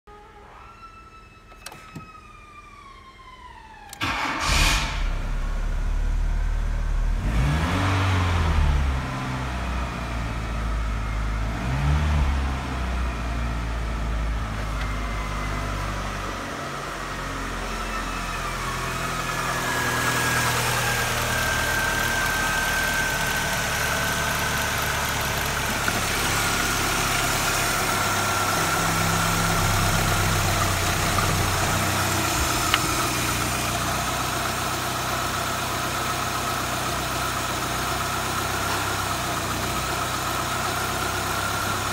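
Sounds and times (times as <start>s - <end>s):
car engine starting and revving: 3.9s - 41.9s
car engine idling: 12.7s - 41.9s.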